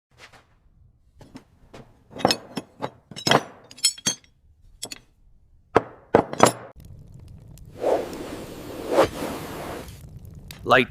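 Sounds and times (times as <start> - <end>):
metal pieces clinking together: 1.2 - 5.1, 6.2 - 6.7.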